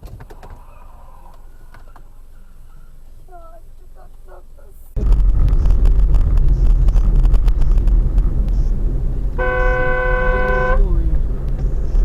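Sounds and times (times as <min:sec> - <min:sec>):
small knocks and rattles: 0:00.0 - 0:00.7
car driving rumble: 0:00.0 - 0:12.0.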